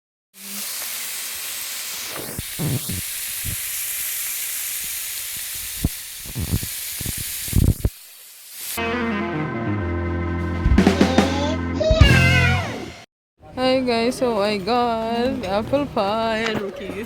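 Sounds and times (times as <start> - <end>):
food sizzling on hot plate: 0.4 - 8.8
low knocks and bumps: 10.6 - 11.2.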